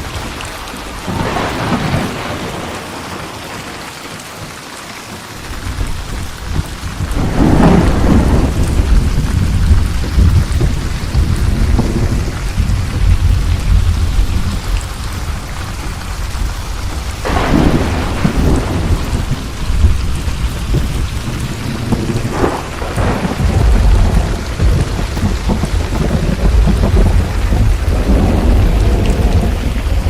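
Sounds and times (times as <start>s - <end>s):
low rolling thunder: 0.0s - 3.7s, 5.6s - 30.0s
steady rain: 0.0s - 30.0s
sharp thunder cracks: 1.0s - 3.1s, 6.5s - 14.6s, 17.2s - 30.0s.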